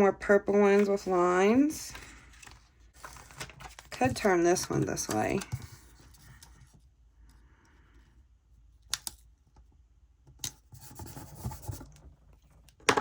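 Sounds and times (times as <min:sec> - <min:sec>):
paper rustling: 0:00.6 - 0:06.7.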